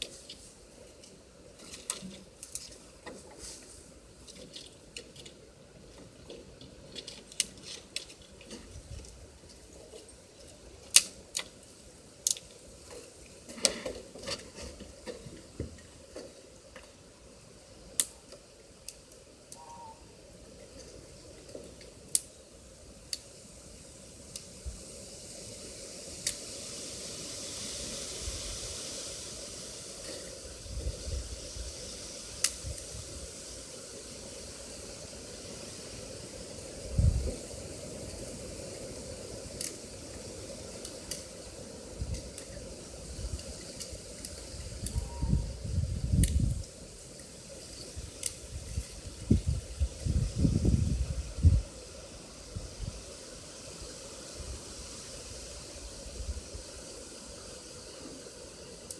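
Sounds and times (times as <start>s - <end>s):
food sizzling in a pan: 24.1s - 58.9s.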